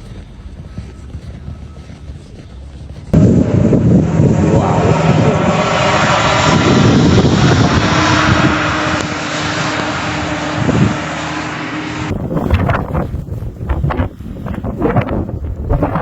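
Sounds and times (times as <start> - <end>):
vehicle running: 0.0 - 16.0
steady rushing noise: 2.2 - 16.0.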